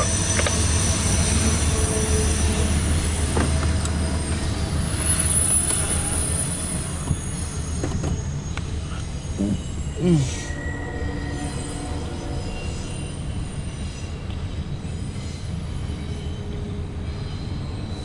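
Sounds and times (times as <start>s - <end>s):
freight train wheels rumbling: 0.0s - 18.0s
high wheel squeal: 0.0s - 18.0s.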